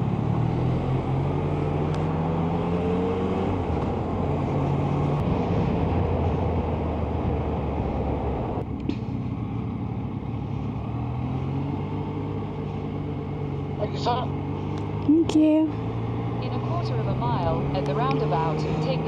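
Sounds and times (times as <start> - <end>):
wind rush: 3.5 - 8.7
motorcycle engine running: 8.6 - 19.0.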